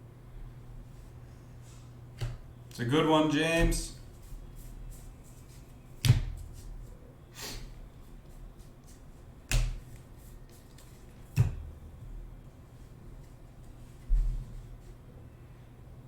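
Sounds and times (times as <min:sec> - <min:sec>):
sharp taps of cards on table: 0:02.2 - 0:02.4, 0:08.8 - 0:09.9
soft swish of cards: 0:04.0 - 0:11.3.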